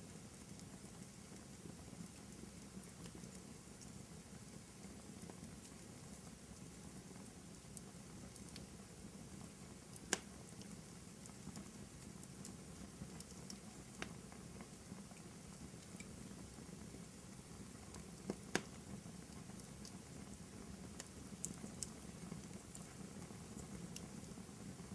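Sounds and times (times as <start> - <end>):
fire hissing and rumbling: 0.0 - 24.9
wood fire crackling and popping: 0.0 - 24.9.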